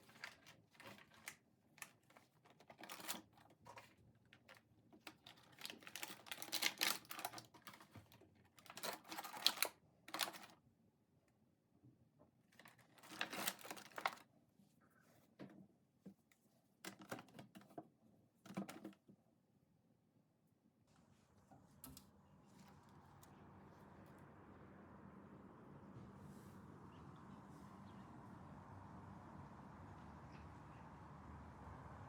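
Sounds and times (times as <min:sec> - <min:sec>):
small objects clicking and rustling: 0:00.0 - 0:10.6, 0:12.6 - 0:14.2.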